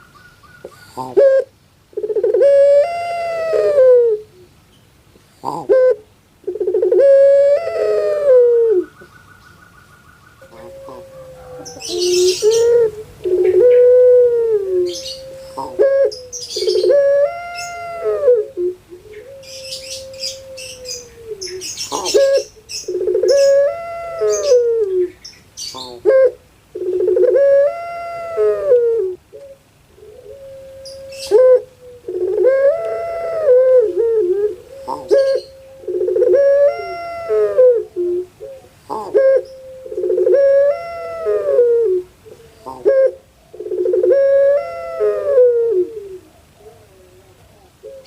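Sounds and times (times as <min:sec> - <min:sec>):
small birds chirping: 0:00.0 - 0:01.2, 0:08.8 - 0:13.9, 0:14.8 - 0:18.0, 0:18.8 - 0:27.4, 0:34.6 - 0:37.0
dove cooing: 0:00.0 - 0:04.6, 0:05.4 - 0:48.0.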